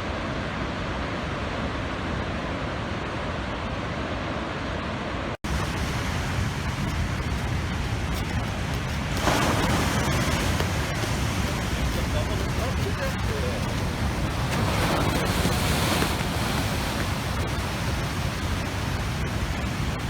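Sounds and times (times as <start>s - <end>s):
wind: 0.0s - 20.0s
storm surf rushing: 5.4s - 20.0s
wave surge: 5.5s - 20.0s.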